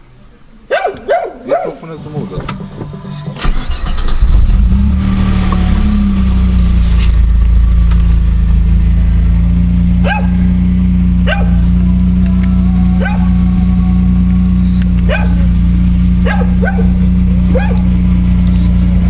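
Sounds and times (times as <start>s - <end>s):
car engine idling: 0.0s - 19.0s
dog barking: 0.7s - 1.9s, 10.0s - 10.5s, 11.2s - 11.8s, 12.7s - 14.1s, 15.0s - 18.0s.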